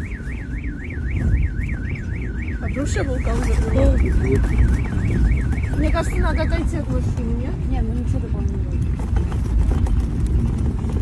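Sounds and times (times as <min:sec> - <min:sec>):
car alarm warbling: 0:00.0 - 0:06.9
low rumbling noise: 0:00.0 - 0:11.0.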